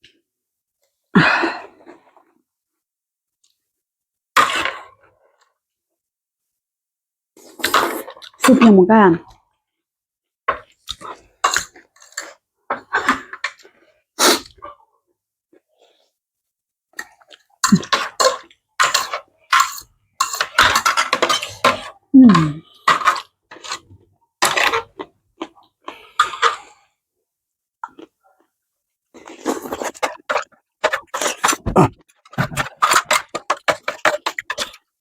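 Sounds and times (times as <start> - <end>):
person slurping noodles: 14.2 - 14.6, 29.2 - 30.3, 31.0 - 32.8.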